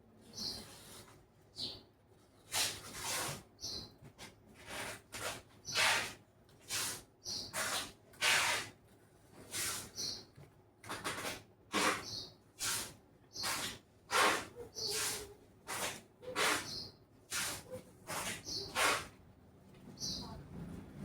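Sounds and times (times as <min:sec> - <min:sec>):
tape ripping off roll: 0:02.5 - 0:03.4, 0:04.6 - 0:08.8, 0:10.8 - 0:16.7, 0:17.3 - 0:19.1
tape squeak: 0:10.9 - 0:19.2.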